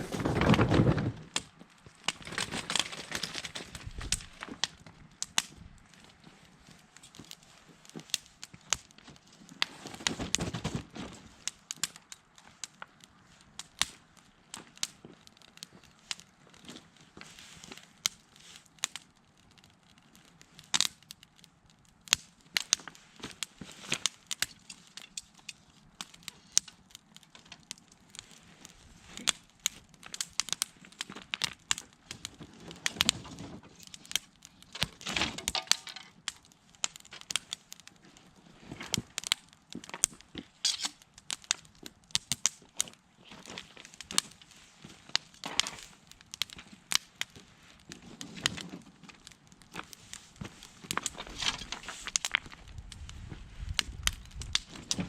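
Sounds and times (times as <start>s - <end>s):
rustling: 0.0s - 4.8s, 46.6s - 54.0s
bonfire crackling and popping: 0.0s - 55.0s.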